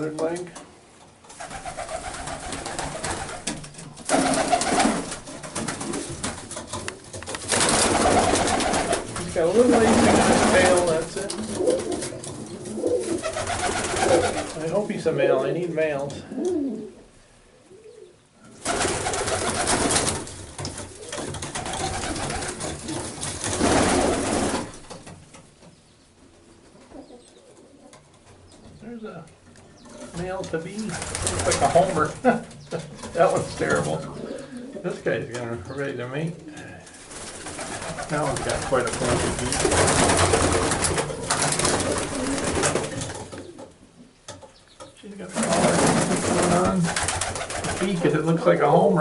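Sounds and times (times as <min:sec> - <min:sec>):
rustling: 0:00.0 - 0:15.0, 0:18.4 - 0:48.5
pigeons cooing: 0:07.7 - 0:14.6, 0:16.1 - 0:24.6, 0:29.8 - 0:35.0, 0:36.4 - 0:44.0, 0:45.2 - 0:48.2.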